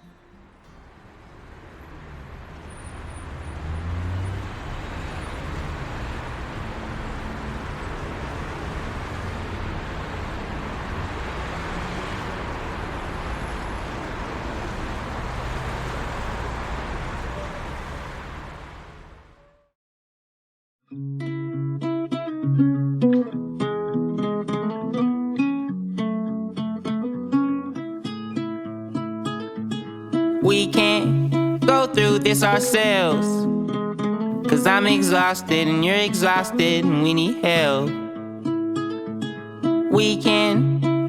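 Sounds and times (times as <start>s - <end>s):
passing traffic rush: 0.0s - 19.6s, 30.4s - 33.4s, 34.4s - 38.8s.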